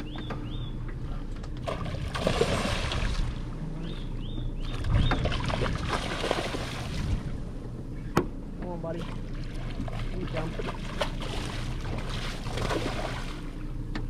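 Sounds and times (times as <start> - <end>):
bird chirping: 0.0 - 0.9, 3.7 - 5.3
low steady rumble: 0.0 - 14.0
water splashing and sloshing: 0.0 - 14.0.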